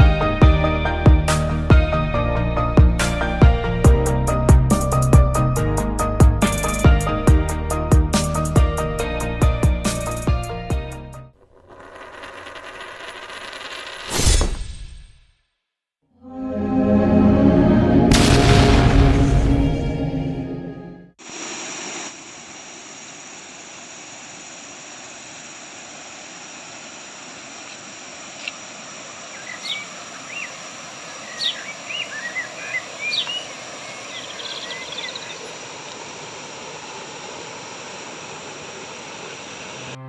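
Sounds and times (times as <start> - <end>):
waterfall and river rushing: 21.2 - 40.0
bird chirping and whistling: 29.4 - 30.5, 31.3 - 33.5.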